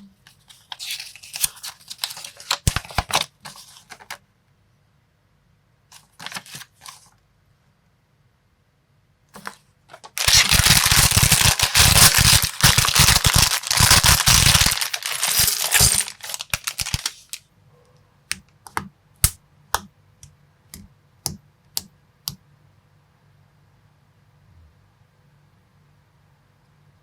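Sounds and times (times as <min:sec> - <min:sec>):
plastic bricks rattling: 0:10.1 - 0:17.1.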